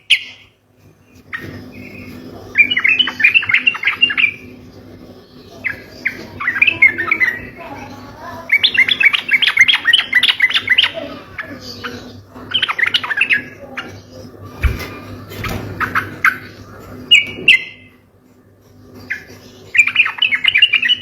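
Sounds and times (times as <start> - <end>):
bird singing fast chirpy notes: 0.0 - 0.6, 1.3 - 14.4, 15.4 - 18.0, 19.0 - 21.0.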